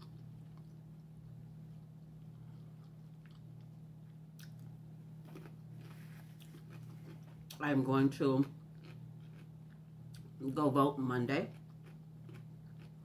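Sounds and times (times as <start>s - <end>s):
chewing mouth sounds: 5.3s - 7.6s, 11.5s - 13.0s.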